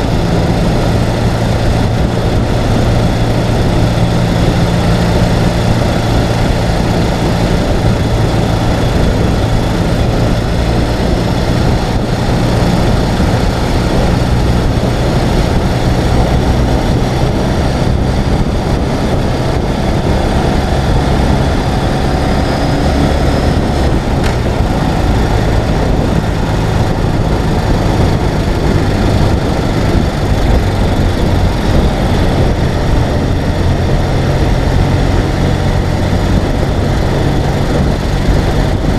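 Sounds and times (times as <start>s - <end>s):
motorcycle engine running: 0.0s - 38.9s
road noise: 0.0s - 38.9s
wind rush: 0.0s - 38.9s.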